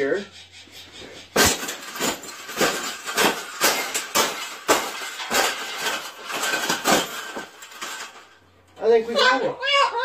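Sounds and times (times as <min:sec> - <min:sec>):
object knocking and rattling when bent: 0:01.2 - 0:08.4.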